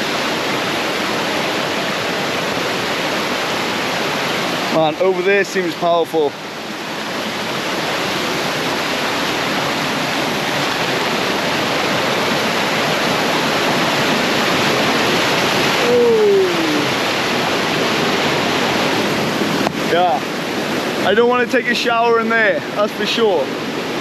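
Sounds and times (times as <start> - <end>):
river rapids rushing: 0.0 - 24.0.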